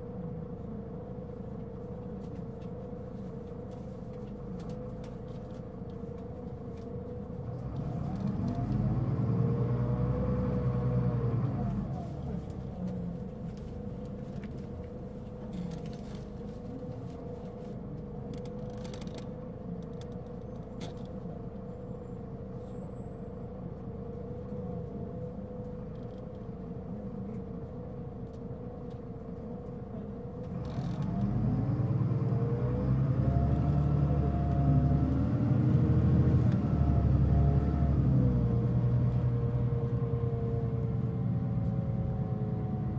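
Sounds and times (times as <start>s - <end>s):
bus diesel engine: 0.0s - 42.9s
clicks inside bus: 2.0s - 8.9s, 12.4s - 21.3s, 25.5s - 26.5s.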